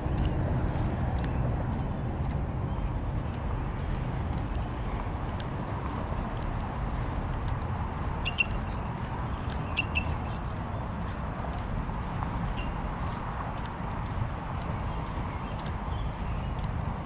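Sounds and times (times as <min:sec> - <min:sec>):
steady low rumble: 0:00.0 - 0:17.0
songbird whistling call: 0:08.2 - 0:09.0, 0:09.7 - 0:10.8, 0:12.9 - 0:13.4.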